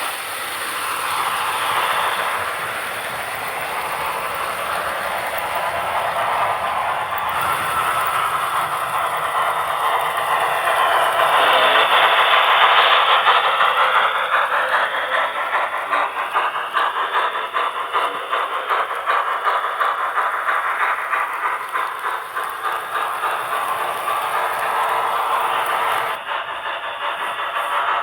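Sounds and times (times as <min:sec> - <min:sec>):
thin motor whine: 0:00.0 - 0:11.9
model train wheels rattling: 0:00.0 - 0:28.0
small regular clicks: 0:01.0 - 0:14.0, 0:15.5 - 0:26.2.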